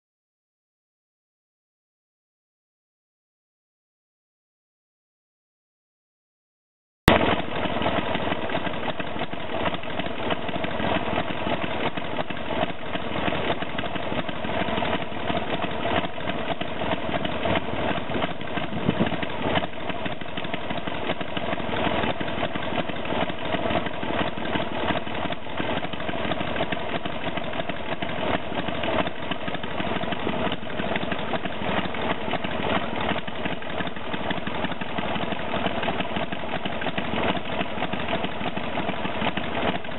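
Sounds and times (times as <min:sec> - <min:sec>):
motorcycle engine idling: 0:07.1 - 0:39.9.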